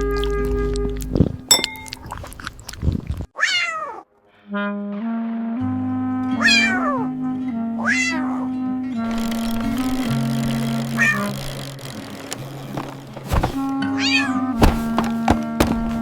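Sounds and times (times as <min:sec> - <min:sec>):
cat meowing: 0:03.4 - 0:04.0, 0:06.4 - 0:07.1, 0:07.8 - 0:08.5, 0:10.9 - 0:11.4, 0:13.9 - 0:14.5
background music: 0:04.9 - 0:16.0.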